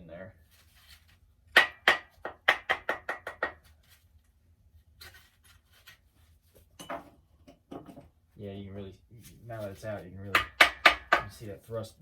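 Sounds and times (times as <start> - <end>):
scraping rustle: 0.4 - 1.2.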